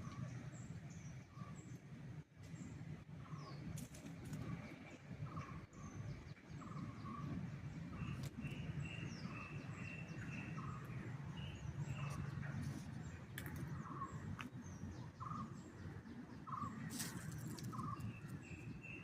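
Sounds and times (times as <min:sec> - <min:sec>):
steady low rumble: 0:00.0 - 0:19.0
wild birds chirping and whistling: 0:04.4 - 0:19.0.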